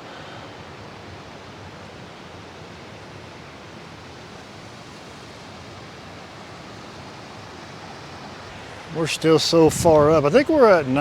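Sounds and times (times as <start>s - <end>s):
rushing mountain creek: 0.0s - 11.0s.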